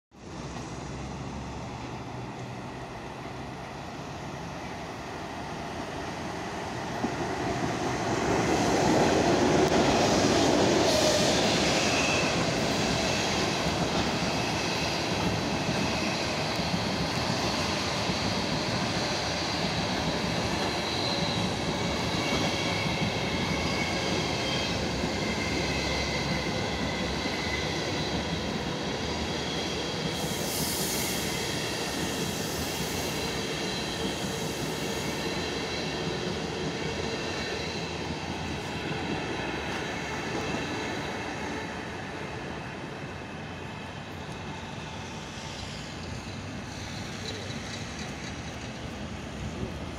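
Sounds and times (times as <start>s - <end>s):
electric locomotive passing: 0.2s - 49.9s
train wheels rumbling on rails: 0.2s - 49.9s
high brake squealing: 10.8s - 38.3s.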